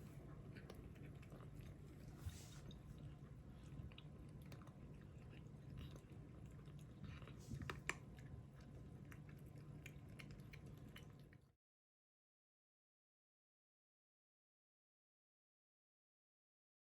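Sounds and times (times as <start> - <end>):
cat chewing food: 0.0 - 11.6.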